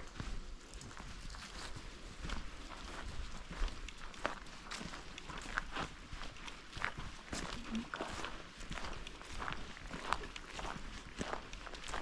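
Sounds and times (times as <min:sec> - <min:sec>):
footsteps on trail: 0:00.0 - 0:12.0.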